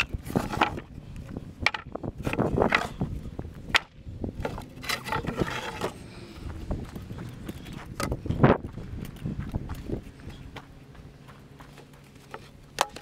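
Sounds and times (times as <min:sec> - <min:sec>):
wooden boards clattering: 0:00.0 - 0:00.9, 0:01.6 - 0:03.0, 0:03.7 - 0:06.0.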